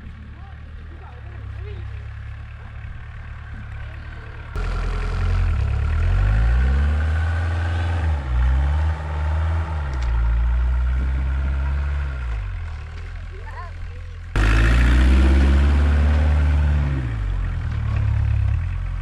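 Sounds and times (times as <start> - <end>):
small diesel engine revving: 0.9 - 19.0.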